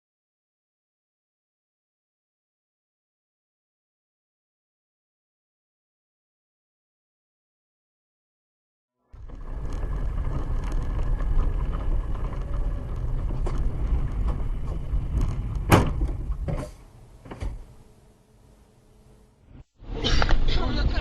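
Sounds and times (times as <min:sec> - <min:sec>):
car rumble on snowy road: 0:09.0 - 0:19.4.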